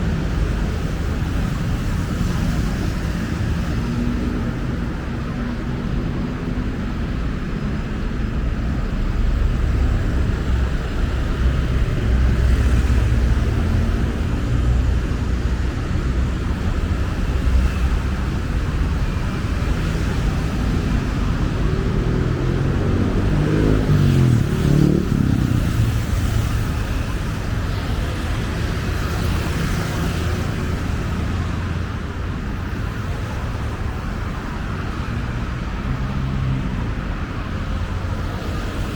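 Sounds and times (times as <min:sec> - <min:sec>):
engine passing by: 0:00.0 - 0:32.1
road traffic rumble: 0:00.0 - 0:38.9.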